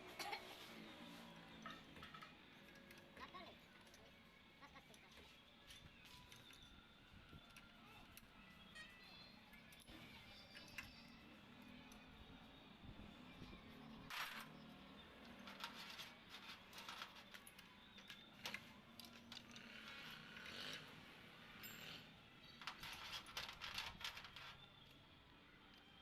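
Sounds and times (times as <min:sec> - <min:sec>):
metal tools clinking: 0:14.0 - 0:20.2, 0:21.6 - 0:24.6.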